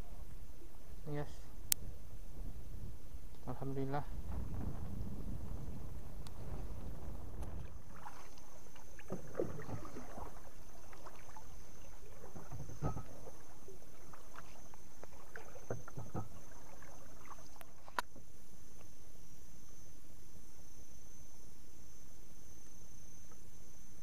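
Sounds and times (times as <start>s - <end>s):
steady low rumble: 0.0s - 15.3s
water lapping against boat hull: 4.2s - 18.2s
knocks and clicks in boat: 12.1s - 18.3s.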